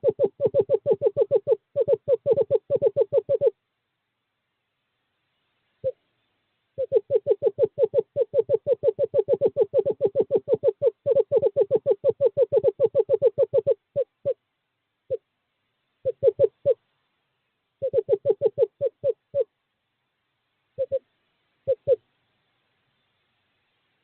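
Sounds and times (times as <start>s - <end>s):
screech owl trilling: 0.0s - 3.6s, 6.8s - 14.4s, 16.0s - 16.8s, 17.8s - 19.5s, 20.8s - 21.0s, 21.7s - 22.0s.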